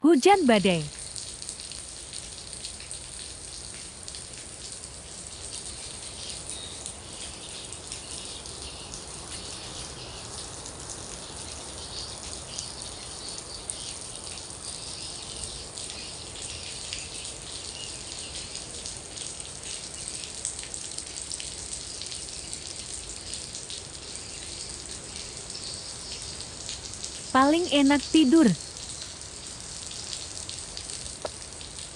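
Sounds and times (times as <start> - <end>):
heavy rain falling: 15.3 - 31.9.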